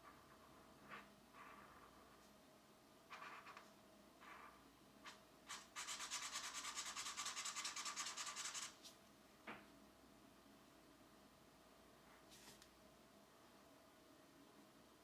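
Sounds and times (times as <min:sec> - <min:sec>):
pencil scratching on paper: 0:05.1 - 0:08.8.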